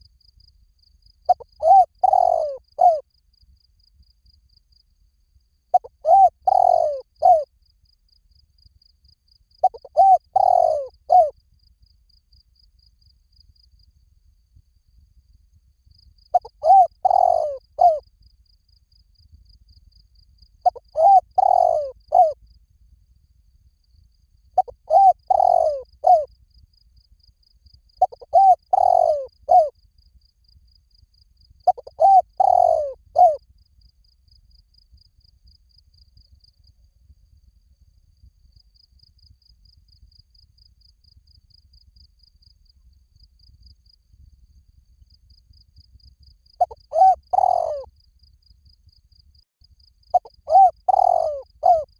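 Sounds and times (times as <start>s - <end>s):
cricket chirping: 0.0s - 51.9s
dove cooing: 1.3s - 3.0s, 5.7s - 7.4s, 9.6s - 11.3s, 16.4s - 18.0s, 20.7s - 22.4s, 24.6s - 26.3s, 28.0s - 29.7s, 31.7s - 33.4s, 46.6s - 47.9s, 50.1s - 51.9s.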